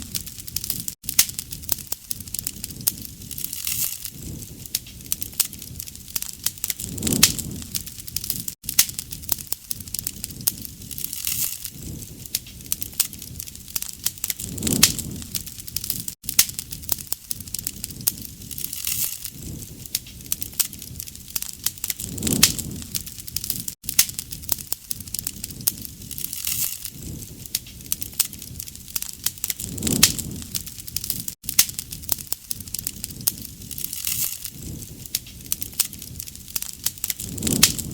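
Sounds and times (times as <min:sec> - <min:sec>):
wood fire crackling and popping: 0:00.0 - 0:37.9
low flame roar: 0:04.1 - 0:08.5, 0:11.7 - 0:16.1, 0:21.9 - 0:23.7, 0:29.5 - 0:31.3, 0:34.5 - 0:37.9.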